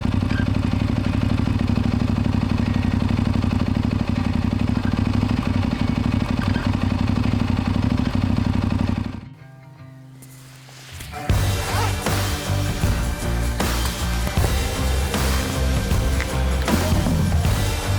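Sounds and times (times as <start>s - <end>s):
motorcycle engine with loud exhaust: 0.0s - 9.3s, 11.3s - 17.9s
quiet music: 9.3s - 17.9s.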